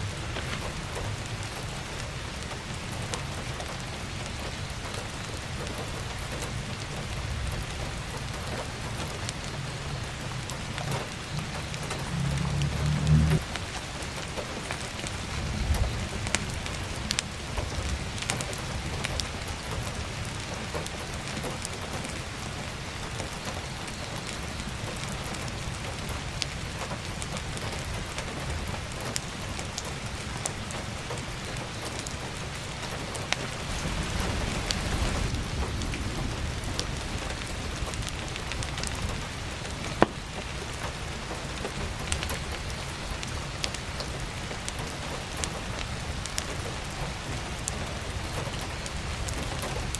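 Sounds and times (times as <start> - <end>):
firewood crackling and popping: 0.0 - 49.9
heavy rain on a skylight: 0.0 - 49.9
low rumble: 9.8 - 13.8.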